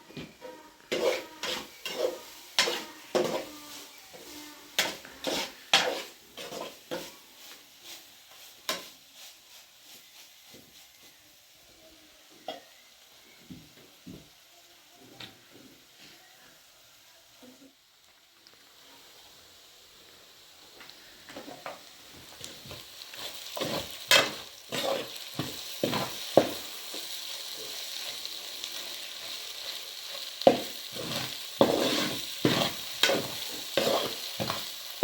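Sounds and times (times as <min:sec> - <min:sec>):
utensil knocking and scraping in pot: 0:00.4 - 0:03.6, 0:04.8 - 0:07.2, 0:22.7 - 0:27.0, 0:30.5 - 0:34.7.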